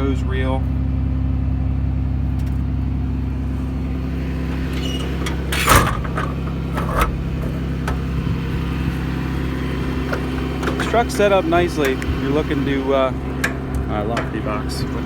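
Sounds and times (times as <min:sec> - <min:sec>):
diesel engine idling: 0:00.0 - 0:15.0
metal compartment door banging shut: 0:03.3 - 0:15.0
latch clicks: 0:03.6 - 0:15.0.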